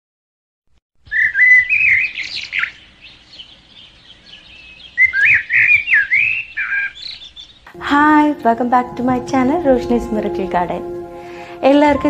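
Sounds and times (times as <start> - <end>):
birds chirping and twittering: 1.0 - 7.7.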